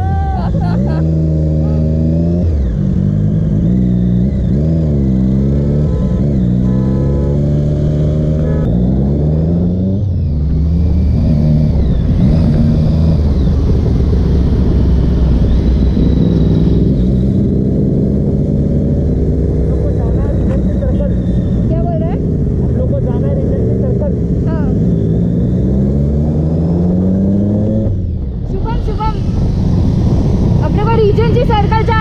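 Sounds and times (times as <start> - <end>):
motorcycle engine revving: 0.0 - 32.0
wind noise on microphone: 28.0 - 31.7.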